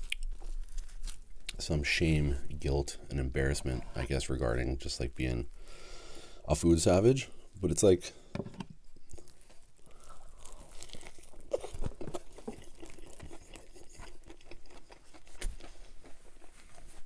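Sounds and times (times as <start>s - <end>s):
person chewing with crunching: 0.0s - 1.7s, 8.8s - 17.0s.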